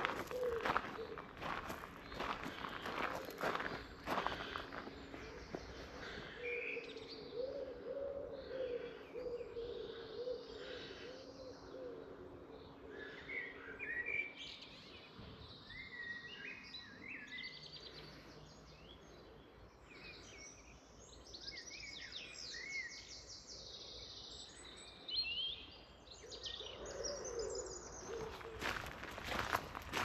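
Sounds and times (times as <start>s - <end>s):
footsteps on a path: 0.0s - 6.5s, 28.0s - 30.0s
songbirds singing: 0.0s - 30.0s.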